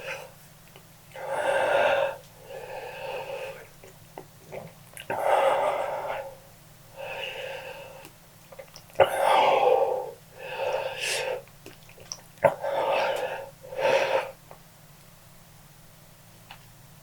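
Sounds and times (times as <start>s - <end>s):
person breathing hard and wheezily: 0.0s - 0.4s, 1.1s - 3.8s, 5.1s - 8.1s, 9.0s - 11.5s, 12.5s - 14.4s.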